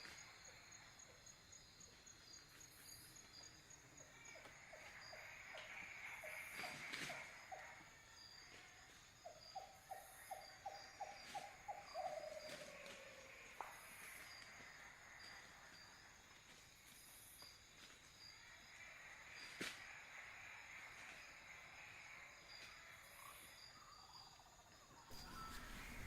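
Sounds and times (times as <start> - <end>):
crickets chirping: 0.0 - 26.0
animal call quickening notes: 25.1 - 26.0.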